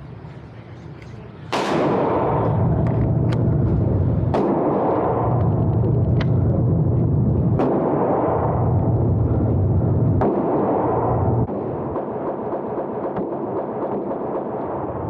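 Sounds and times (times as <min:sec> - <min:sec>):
low rumbling noise: 0:00.0 - 0:12.8
sharp gunshot-like cracks: 0:01.5 - 0:03.4, 0:04.3 - 0:05.4, 0:07.6 - 0:08.6
loud bang: 0:01.5 - 0:12.0.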